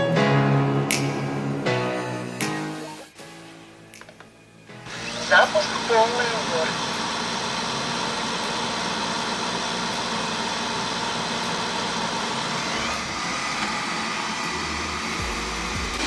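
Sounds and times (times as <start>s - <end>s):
robot vacuum fan whirring: 4.9s - 16.0s.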